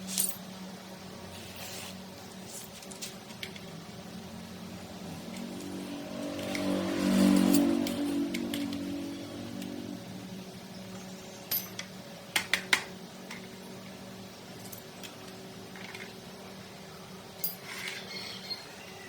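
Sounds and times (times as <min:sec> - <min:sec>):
steady low hum: 0:00.0 - 0:17.7
metallic clinks of tools: 0:17.4 - 0:18.6.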